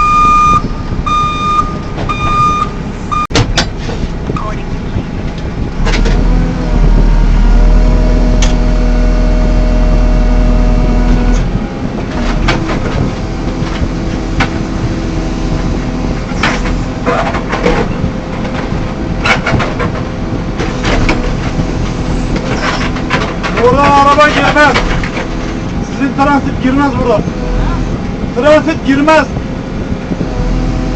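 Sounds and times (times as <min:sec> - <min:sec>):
diesel engine running: 0:00.0 - 0:30.9
sharp knocks: 0:03.3 - 0:04.0.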